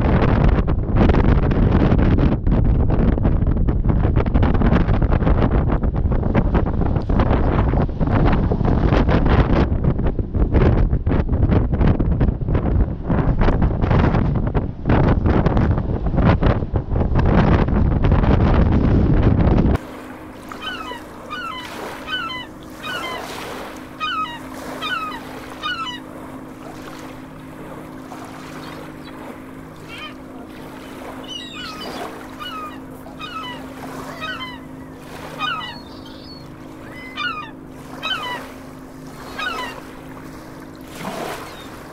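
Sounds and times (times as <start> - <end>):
steady low hum: 4.3 - 41.9
birds calling: 19.9 - 41.9.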